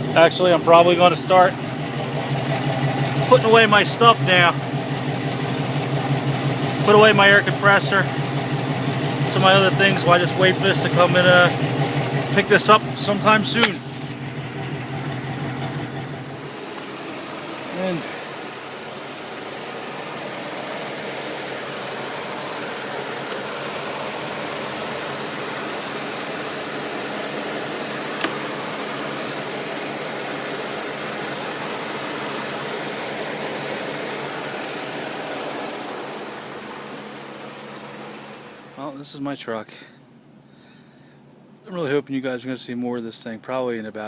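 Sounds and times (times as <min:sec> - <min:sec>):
truck engine idling: 0:00.0 - 0:41.4
sharp click: 0:13.6 - 0:14.0, 0:28.2 - 0:28.4.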